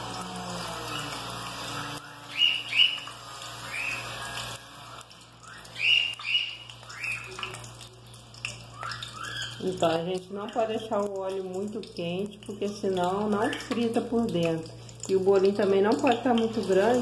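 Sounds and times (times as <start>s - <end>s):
bird chirping rising calls: 5.4s - 7.4s.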